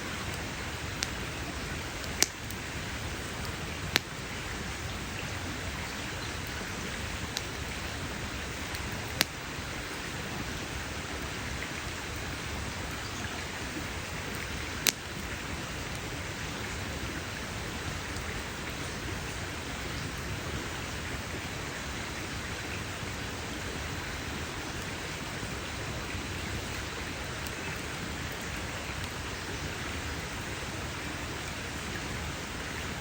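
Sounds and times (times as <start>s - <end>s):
campfire hissing: 0.0s - 33.0s
wood crackling pops: 0.1s - 1.3s, 2.0s - 2.7s, 3.4s - 4.2s, 7.2s - 7.8s, 8.6s - 9.4s, 14.3s - 15.2s.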